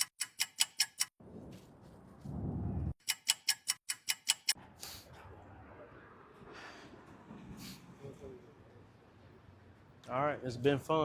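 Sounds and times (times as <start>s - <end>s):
clock ticking: 0.0s - 1.2s, 3.0s - 4.6s.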